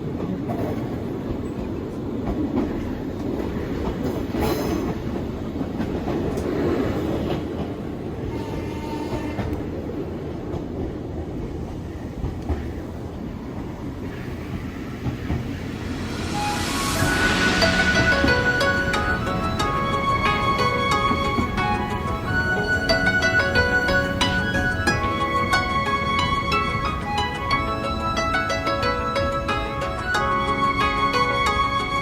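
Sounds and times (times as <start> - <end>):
clickety-clack over rail joints: 0.0 - 15.7
train wheels rumbling on rails: 0.0 - 32.0.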